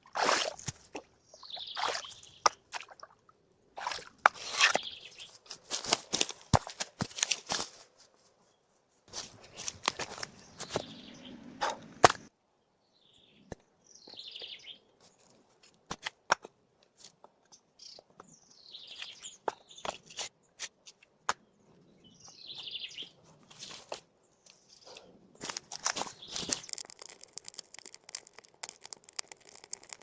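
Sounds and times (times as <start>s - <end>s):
sharp snaps and clicks: 25.4s - 30.0s.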